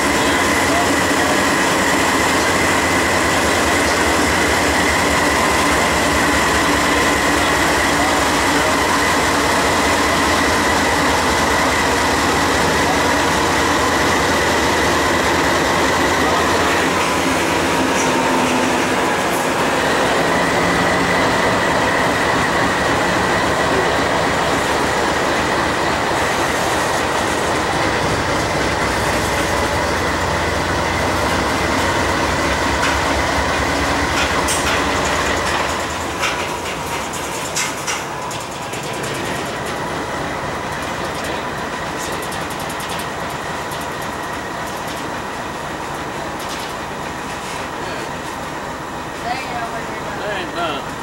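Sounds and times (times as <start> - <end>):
diesel locomotive passing: 0.0 - 51.0
train wheel rumble: 0.0 - 51.0
wheels clicking over rail joints: 25.3 - 48.4.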